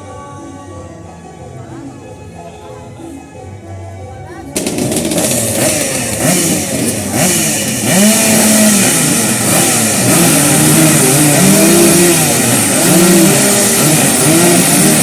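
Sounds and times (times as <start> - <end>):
motorcycle engines revving: 4.5 - 15.0.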